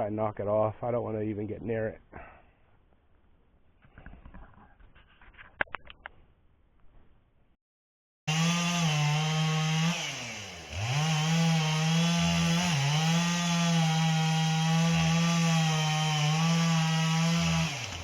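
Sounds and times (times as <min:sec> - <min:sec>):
chainsaw running at high revs: 0:08.3 - 0:18.0.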